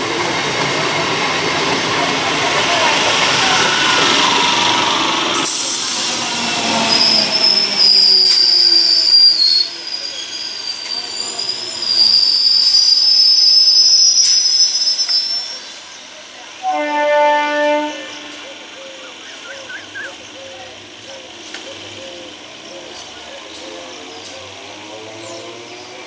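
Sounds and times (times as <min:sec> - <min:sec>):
high-pitched wheel squeal: 0:05.4 - 0:15.7.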